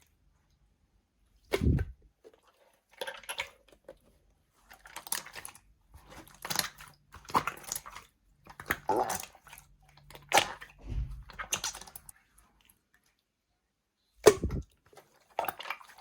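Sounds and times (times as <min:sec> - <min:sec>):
slime squishing: 0:01.4 - 0:12.9, 0:14.2 - 0:16.0
low thump: 0:10.8 - 0:11.5, 0:14.3 - 0:14.6.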